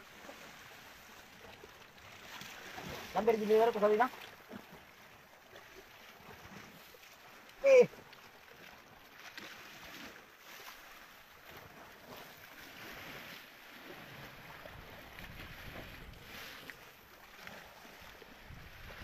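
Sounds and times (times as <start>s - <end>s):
sea water: 0.0s - 19.0s
wind on microphone: 14.6s - 16.6s, 18.4s - 19.0s.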